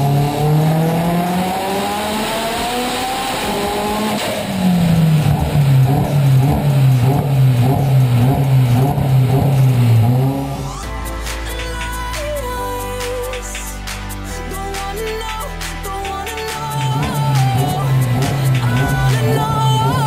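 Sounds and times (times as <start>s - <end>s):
turbocharged engine revving: 0.0s - 11.0s, 16.3s - 20.0s.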